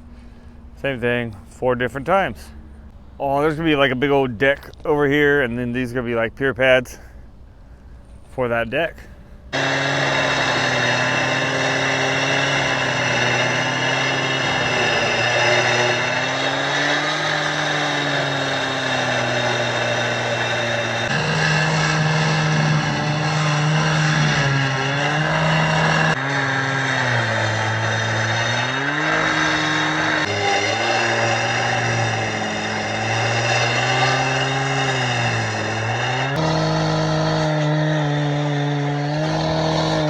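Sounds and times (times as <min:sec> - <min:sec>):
blade grinding through concrete: 0:09.5 - 0:40.0
cut-off saw engine high revs: 0:09.5 - 0:40.0.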